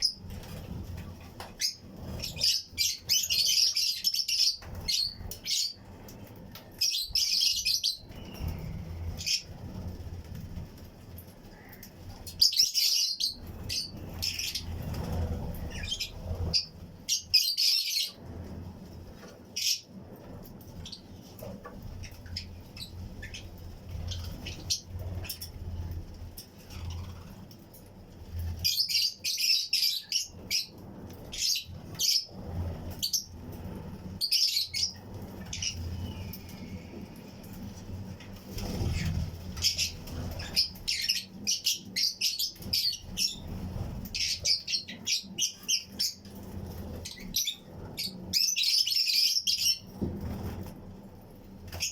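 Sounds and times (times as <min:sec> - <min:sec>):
low steady rumble: 0:00.0 - 0:48.8
lovebirds chirping shrilly: 0:01.6 - 0:05.9, 0:11.5 - 0:18.2, 0:20.8 - 0:25.6, 0:38.5 - 0:49.8.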